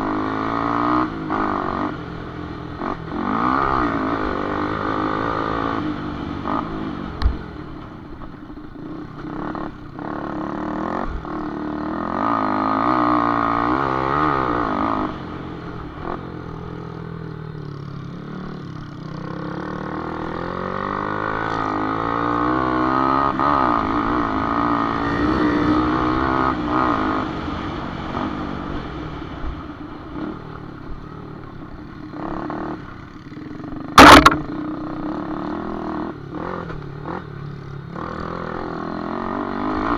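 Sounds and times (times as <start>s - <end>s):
motorcycle engines revving: 8.8s - 39.9s
loud sharp knock: 34.0s - 34.4s.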